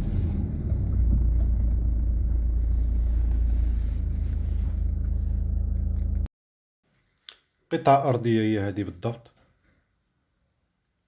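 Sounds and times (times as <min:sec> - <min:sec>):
car driving rumble: 0:00.0 - 0:06.3.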